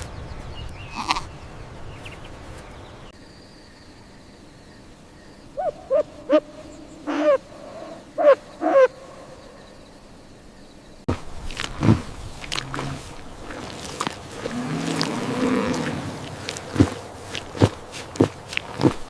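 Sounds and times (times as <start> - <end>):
owl hooting: 5.6 - 9.6
low animal call: 5.6 - 9.7, 11.6 - 18.8.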